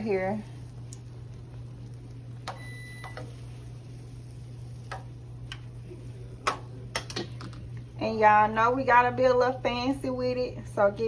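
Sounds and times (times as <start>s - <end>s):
steady low hum: 0.0s - 11.0s
short electronic beep: 2.6s - 3.2s.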